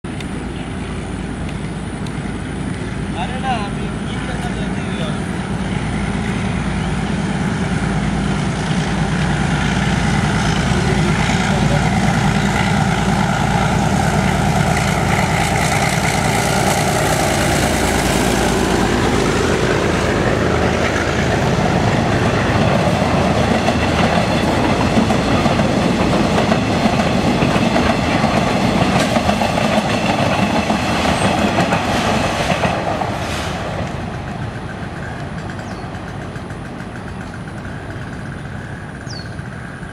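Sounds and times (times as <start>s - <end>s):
diesel locomotive engine: 0.0s - 39.9s
wheels clattering over rail joints: 33.8s - 39.9s.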